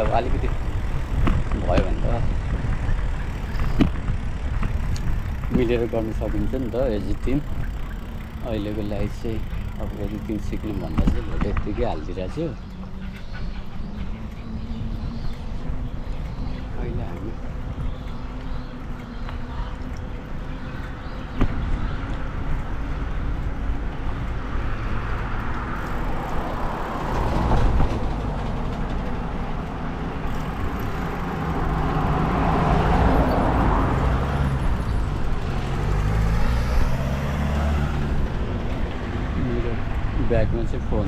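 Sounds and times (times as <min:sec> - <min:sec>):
road traffic noise: 0:00.0 - 0:41.0
vehicles passing: 0:00.0 - 0:41.0.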